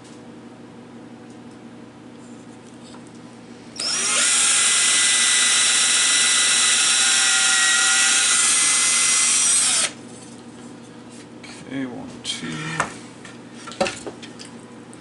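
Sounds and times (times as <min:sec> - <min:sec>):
electric drill whining: 0:03.8 - 0:10.0.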